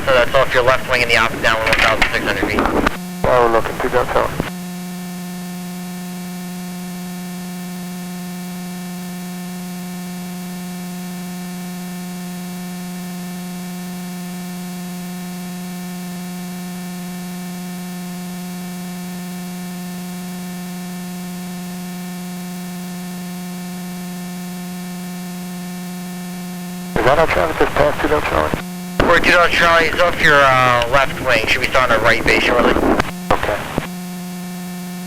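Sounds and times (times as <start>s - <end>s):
intercom hum and hiss: 0.0s - 4.5s, 27.0s - 33.9s.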